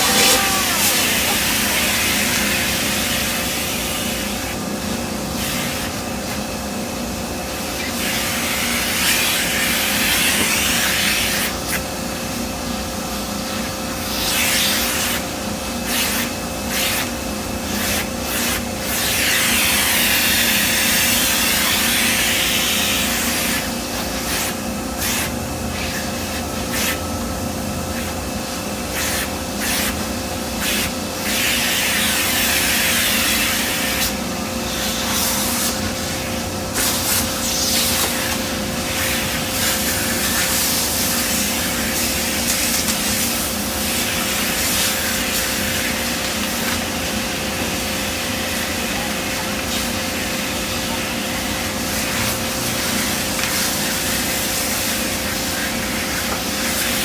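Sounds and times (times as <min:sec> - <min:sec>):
vacuum cleaner running: 0:00.0 - 0:11.4.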